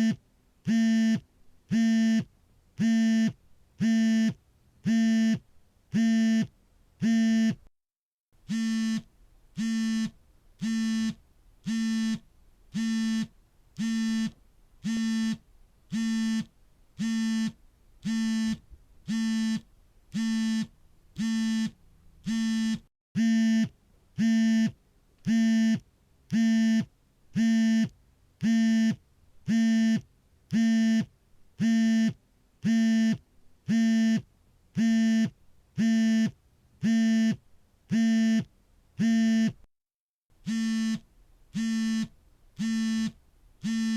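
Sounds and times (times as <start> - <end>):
phone vibration buzzing: 8.5 - 34.2, 34.8 - 39.6, 40.4 - 43.9.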